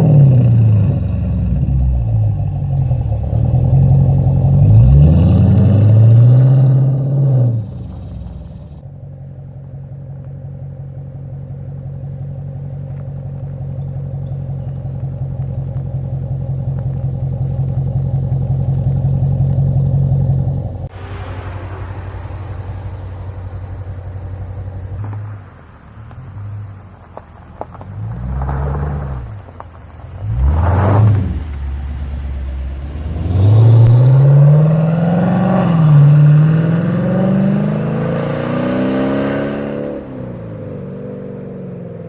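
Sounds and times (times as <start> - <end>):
car engine revving and idling: 0.0 - 42.0
hiss: 20.9 - 27.7.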